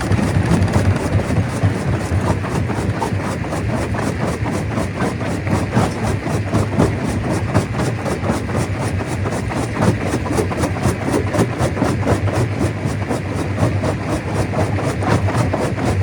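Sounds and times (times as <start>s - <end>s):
stone crusher running: 0.0s - 4.4s.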